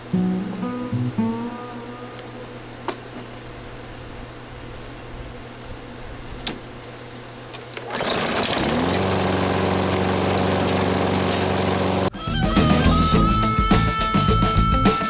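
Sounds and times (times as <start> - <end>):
lawn mower engine starting: 7.5 - 12.1.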